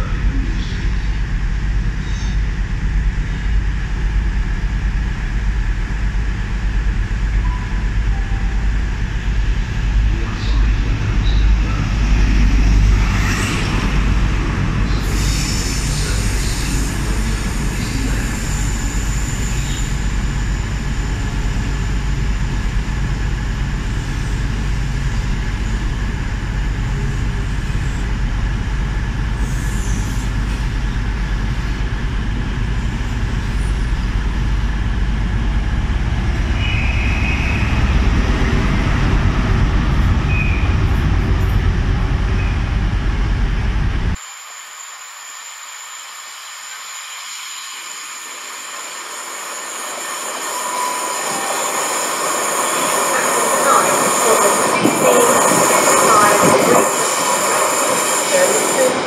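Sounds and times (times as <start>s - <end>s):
diesel locomotive low rumble: 0.0s - 44.2s, 46.2s - 59.0s
train approaching: 0.0s - 59.0s
train coaches rolling by: 0.0s - 59.0s
wheel squeal: 45.3s - 59.0s.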